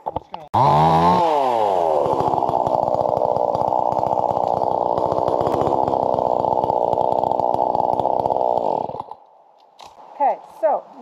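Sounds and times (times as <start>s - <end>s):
chainsaw engine revving: 0.1s - 10.0s.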